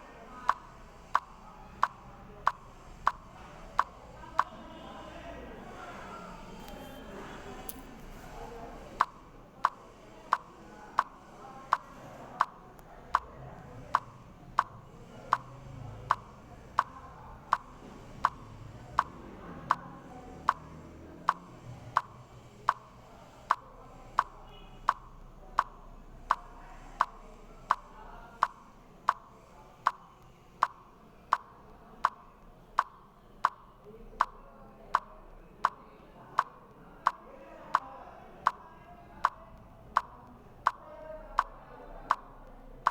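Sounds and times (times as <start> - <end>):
sharp regular tick: 0.5 - 4.5, 9.0 - 35.8, 39.2 - 40.8, 41.4 - 42.9.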